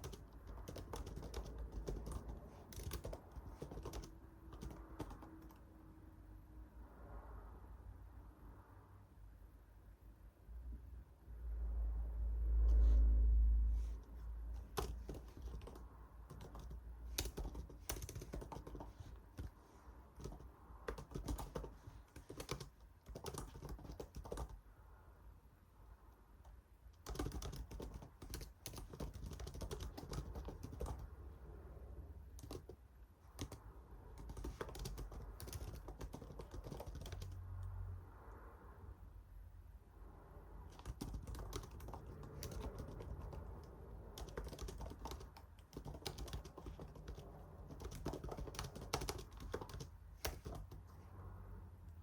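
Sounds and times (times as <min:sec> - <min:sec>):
computer keyboard typing: 0:00.0 - 0:05.7, 0:14.6 - 0:24.6, 0:27.0 - 0:31.3, 0:32.3 - 0:37.4, 0:40.7 - 0:50.9.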